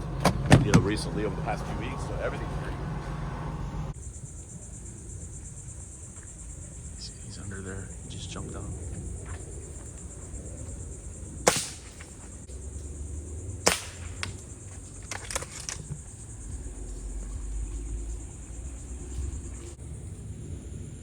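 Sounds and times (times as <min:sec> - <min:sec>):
high insect buzz: 0:00.0 - 0:21.0
small gun shots: 0:11.4 - 0:12.2, 0:13.6 - 0:16.0
faint clicks: 0:13.6 - 0:19.8.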